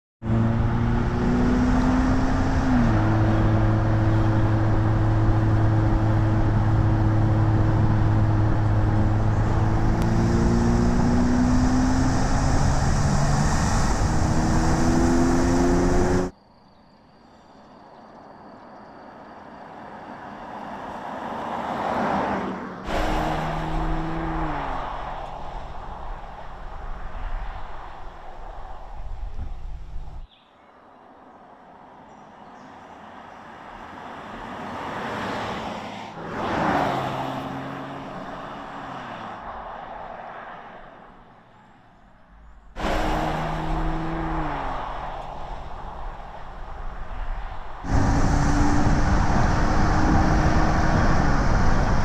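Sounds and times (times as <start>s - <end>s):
car engine accelerating: 0.2s - 16.3s, 22.9s - 28.0s, 42.8s - 52.0s.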